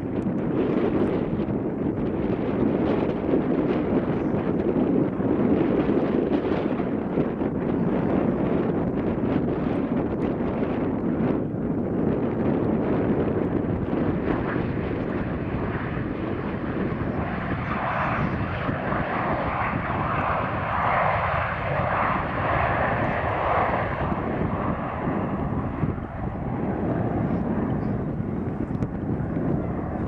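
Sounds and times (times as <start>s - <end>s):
airliner engines passing: 0.0s - 30.0s
wind buffeting microphone: 0.0s - 30.0s.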